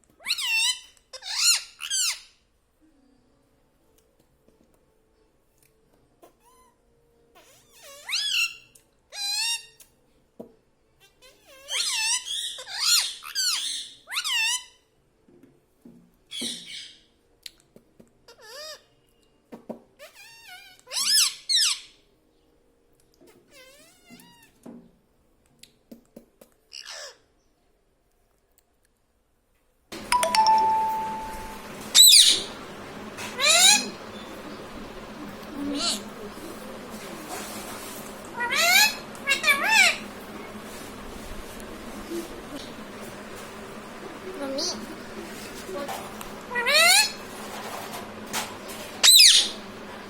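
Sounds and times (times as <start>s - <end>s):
parrot high-pitched calls: 0.2s - 2.3s, 7.4s - 9.8s, 11.2s - 14.8s, 18.3s - 18.9s, 20.0s - 22.0s, 26.7s - 27.2s, 30.1s - 32.6s, 33.2s - 34.4s, 35.6s - 36.1s, 37.9s - 40.3s, 46.5s - 47.4s, 48.8s - 49.8s
bell-like ding: 30.0s - 31.7s.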